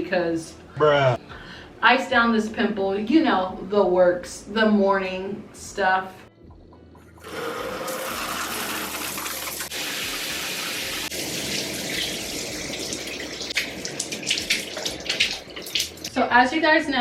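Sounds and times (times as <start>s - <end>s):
water running from a tap: 7.2s - 16.2s.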